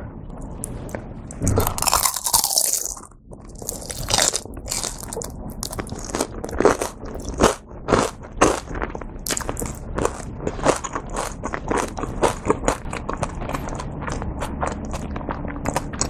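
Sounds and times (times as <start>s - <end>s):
crunching bite and chewing: 0.5s - 16.0s.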